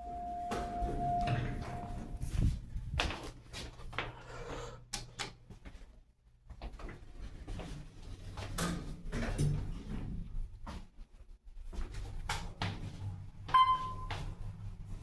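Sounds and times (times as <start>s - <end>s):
low steady hum: 0.0s - 3.1s.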